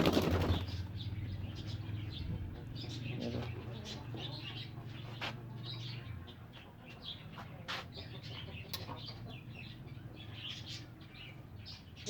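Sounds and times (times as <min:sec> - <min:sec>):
caged birds chirping: 0:00.0 - 0:12.0
hens clucking: 0:02.3 - 0:10.0.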